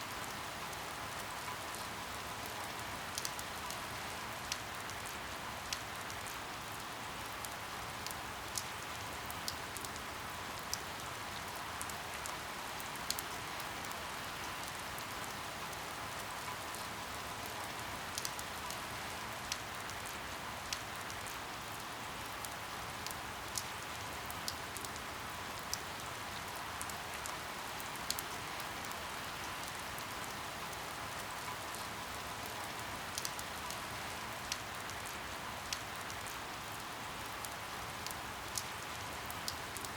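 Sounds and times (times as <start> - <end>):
steady rain falling: 0.0 - 39.9
water drip ticks: 2.4 - 3.8, 7.4 - 11.0, 11.8 - 21.4, 22.4 - 26.0, 26.8 - 36.8, 37.4 - 39.9.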